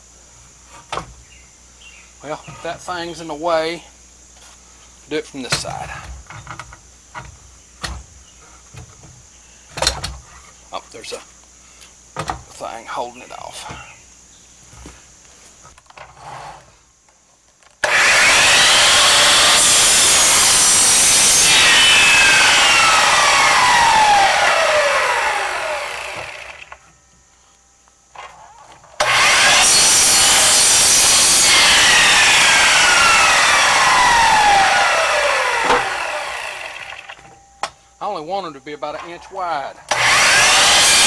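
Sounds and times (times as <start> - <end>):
electric saw cutting wood: 17.8 - 26.8, 29.0 - 37.2, 39.9 - 41.0
saw winding down whine: 17.8 - 26.8, 29.0 - 37.3, 39.9 - 41.0.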